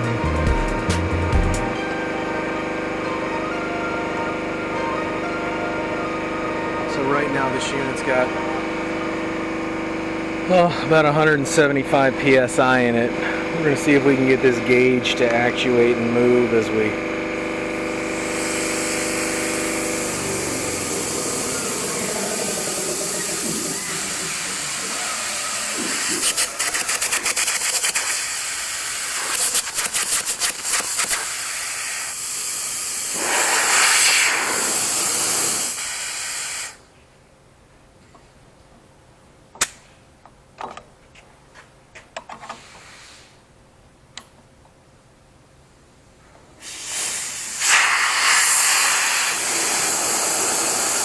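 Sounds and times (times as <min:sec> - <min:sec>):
compressed air hissing: 0:16.8 - 0:36.9, 0:42.6 - 0:43.4, 0:46.6 - 0:51.0.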